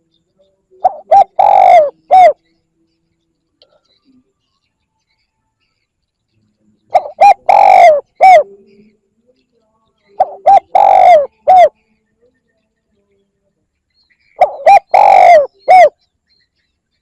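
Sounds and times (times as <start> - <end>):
dove cooing: 0.8 - 2.4, 6.9 - 8.6, 10.2 - 11.8, 14.4 - 16.0.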